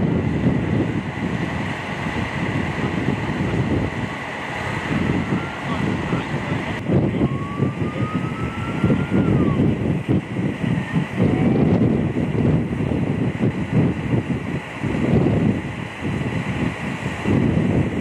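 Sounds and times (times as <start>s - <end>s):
wind buffeting microphone: 0.0s - 18.0s
faint high whine: 4.3s - 9.8s.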